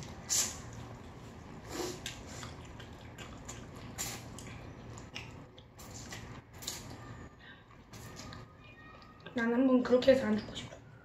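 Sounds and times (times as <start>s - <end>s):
people chewing wetly: 0.0s - 9.2s
small mouth clicks: 1.9s - 6.3s.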